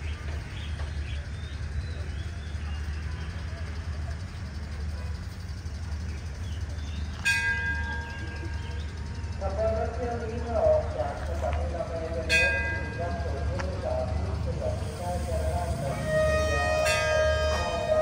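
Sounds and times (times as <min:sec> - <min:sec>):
train rumbling: 0:00.0 - 0:18.0
station bell ringing: 0:06.7 - 0:14.5, 0:15.8 - 0:18.0.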